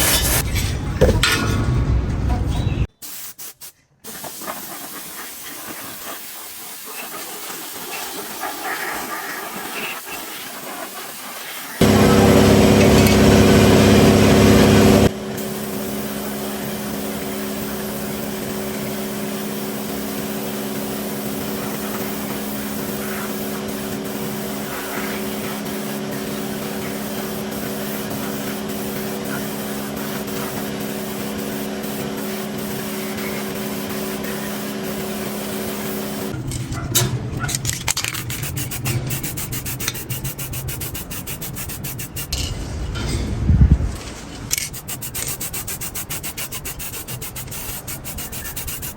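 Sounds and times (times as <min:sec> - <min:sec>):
power tool motor humming: 0:11.8 - 0:36.4.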